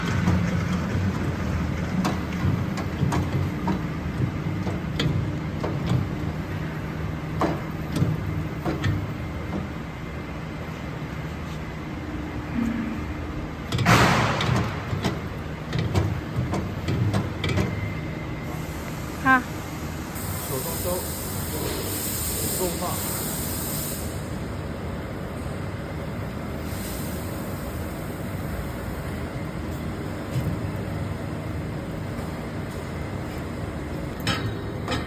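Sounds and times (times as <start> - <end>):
short burst of hissing: 20.2 - 24.3.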